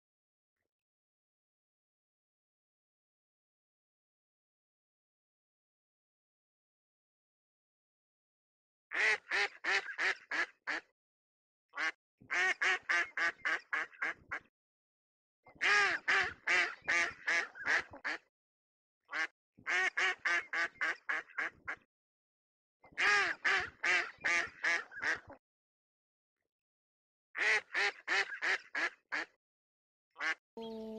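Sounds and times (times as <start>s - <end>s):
duck quacking rapidly: 8.9s - 10.9s, 11.8s - 14.4s, 15.6s - 18.3s, 19.1s - 21.8s, 23.0s - 25.4s, 27.4s - 29.4s, 30.2s - 30.9s.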